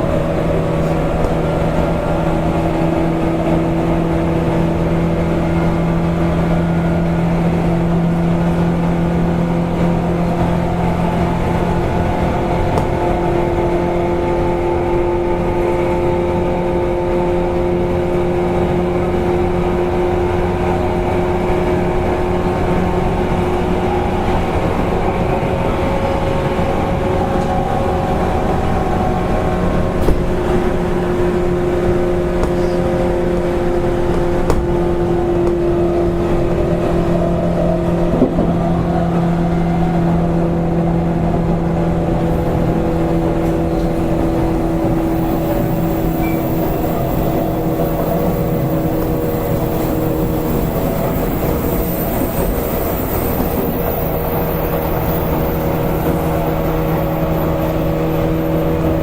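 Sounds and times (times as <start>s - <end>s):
wheels rumbling on rails: 0.0s - 59.0s
train motor whine: 17.0s - 59.0s.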